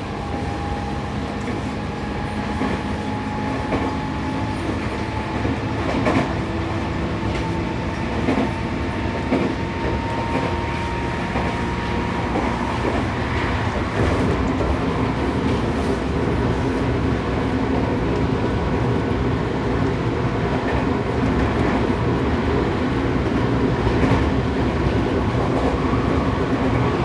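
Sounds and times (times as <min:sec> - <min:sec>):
train running rumble: 0:00.0 - 0:27.0.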